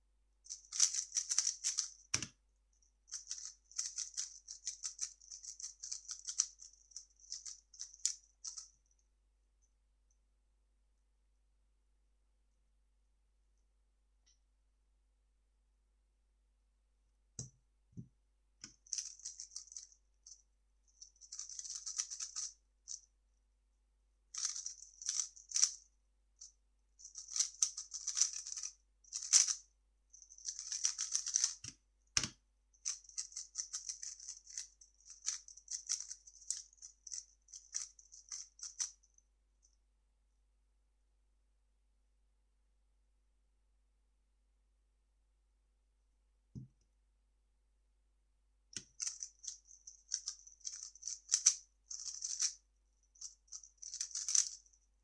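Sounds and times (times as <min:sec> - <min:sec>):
plastic puzzle cube clicking: 0:00.7 - 0:02.3, 0:03.2 - 0:06.5, 0:27.3 - 0:29.6, 0:30.5 - 0:34.6, 0:35.2 - 0:36.6, 0:50.2 - 0:52.5, 0:53.9 - 0:54.6.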